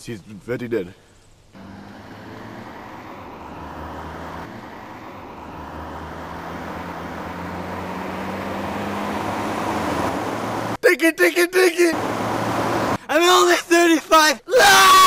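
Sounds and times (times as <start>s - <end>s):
vehicle engine humming: 1.6s - 10.8s, 11.9s - 13.0s.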